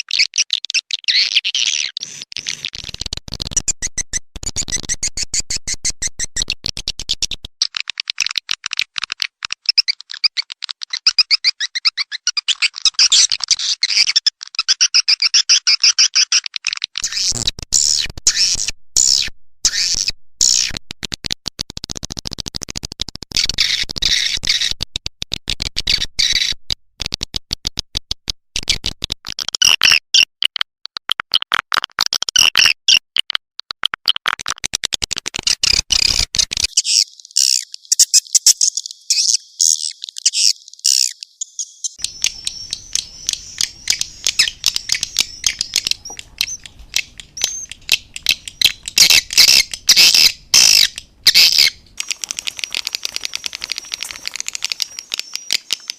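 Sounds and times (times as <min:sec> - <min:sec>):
swiftlet calls chittering: 0:35.7 - 0:55.9.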